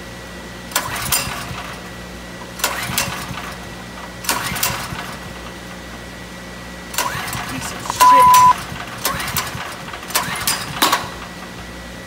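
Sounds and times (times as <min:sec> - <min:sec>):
engine turning over rattle: 0:00.6 - 0:12.0
generator recoil cord pulls: 0:00.7 - 0:05.6, 0:06.9 - 0:11.5.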